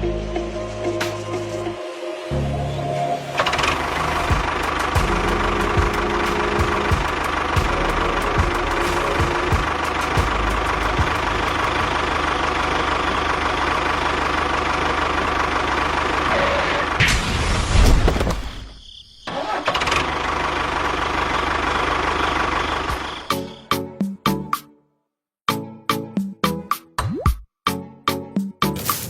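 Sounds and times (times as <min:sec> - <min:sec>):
small engine running: 0:03.4 - 0:17.0, 0:19.5 - 0:23.3.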